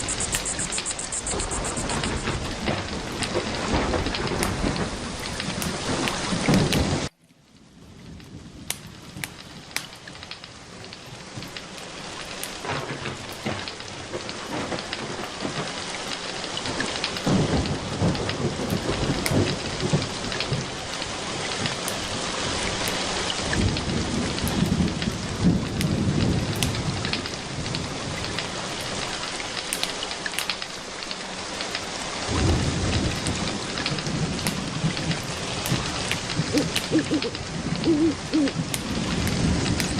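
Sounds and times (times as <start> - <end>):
thunder rolling: 0.0 - 7.1, 16.7 - 22.8, 23.4 - 29.1, 32.3 - 39.9
steady rain falling: 0.0 - 39.9.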